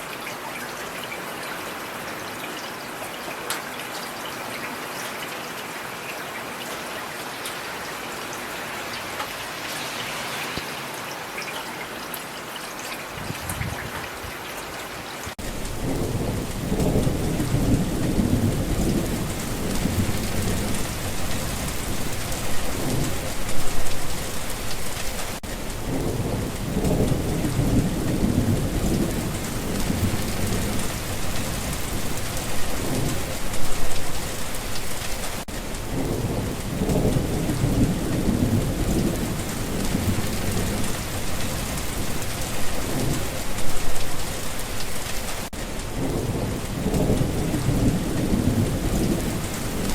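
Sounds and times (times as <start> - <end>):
steady rain: 0.0 - 49.9
low rolling thunder: 15.4 - 35.1, 35.7 - 44.4, 45.9 - 49.9.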